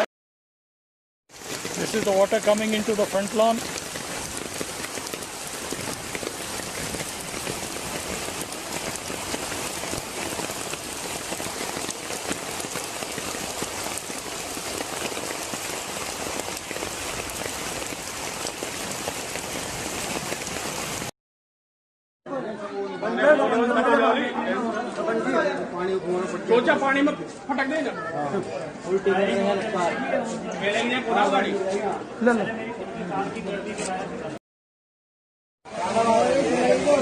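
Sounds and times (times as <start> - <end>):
rain and flowing floodwater: 1.3 - 21.1, 35.7 - 37.0.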